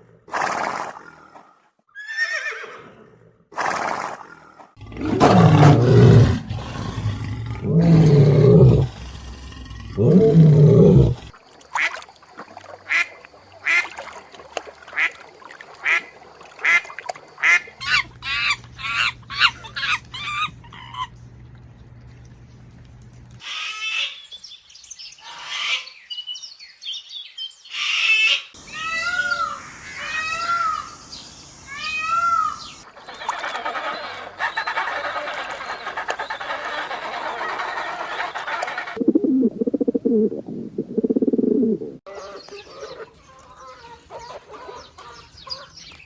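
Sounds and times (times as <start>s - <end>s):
ducks quacking: 14.9s - 21.1s, 32.8s - 39.1s
chorus of many birds: 28.6s - 39.2s, 42.1s - 46.0s
drawn-out honk-like calls: 32.9s - 39.0s.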